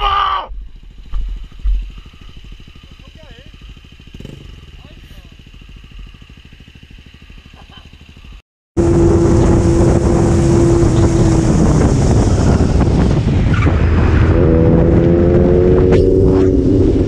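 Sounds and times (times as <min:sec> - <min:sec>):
motorcycle engine: 0:00.0 - 0:17.0
wind rush over microphone: 0:08.8 - 0:17.0.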